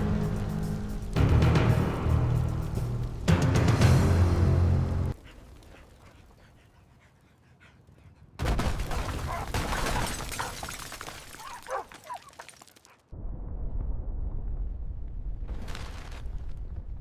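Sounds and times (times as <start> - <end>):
deep rumble: 0.0 - 5.2, 13.2 - 17.0
rumble: 0.0 - 5.8, 13.1 - 17.0.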